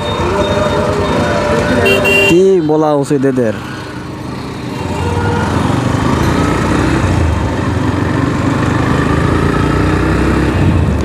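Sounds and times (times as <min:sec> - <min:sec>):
road noise: 0:00.0 - 0:11.0
motorcycle engine running: 0:03.8 - 0:11.0.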